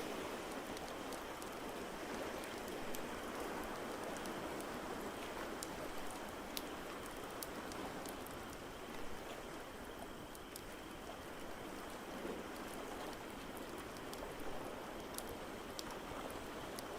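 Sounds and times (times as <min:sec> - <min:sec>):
ocean waves: 0:00.0 - 0:07.0.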